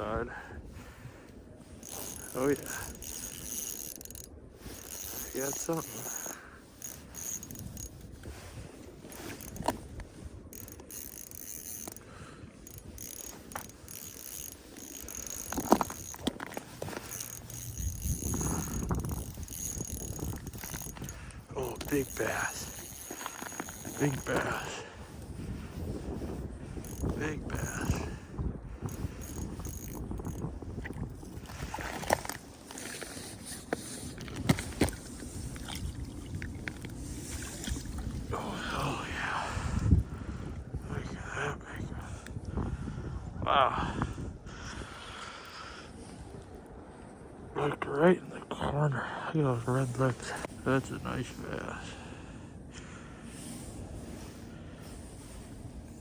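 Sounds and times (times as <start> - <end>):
fishing reel ratcheting: 1.8 - 8.1, 9.1 - 9.8, 10.5 - 24.7, 26.8 - 28.0, 28.8 - 30.6.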